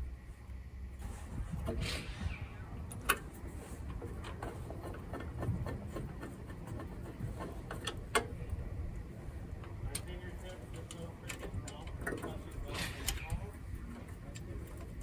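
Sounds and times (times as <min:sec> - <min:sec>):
low rumble: 0:01.4 - 0:04.2.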